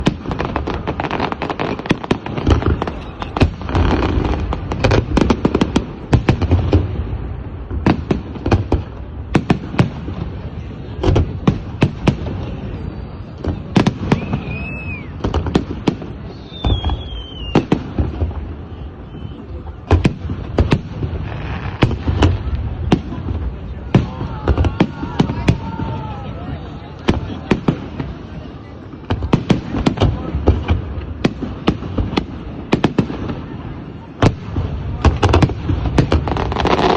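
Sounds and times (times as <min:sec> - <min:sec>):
fireworks bangs and pops: 0:00.0 - 0:36.9
whistling firework tones: 0:12.4 - 0:22.5.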